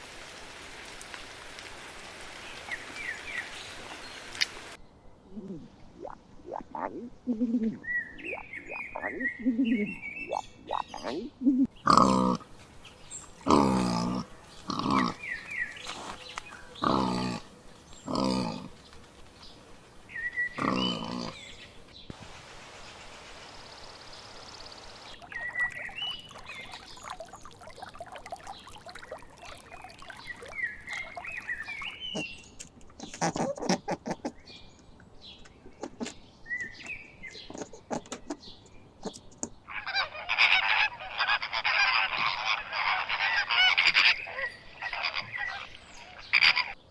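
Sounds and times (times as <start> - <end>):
soft high chirps and clicks: 5.5 - 7.1, 8.1 - 11.7, 24.6 - 32.9
waterfowl calling: 24.7 - 32.4, 39.7 - 46.8.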